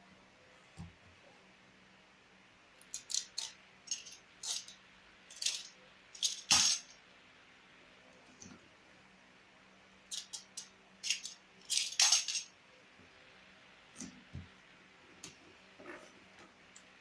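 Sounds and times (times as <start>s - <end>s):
objects clicking and clinking: 2.8s - 6.9s, 10.1s - 12.5s.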